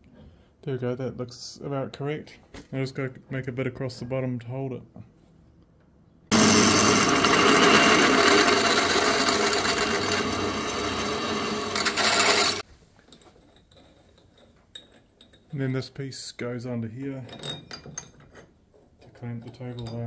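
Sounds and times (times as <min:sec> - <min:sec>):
metalworking tool noise: 0:06.3 - 0:12.6.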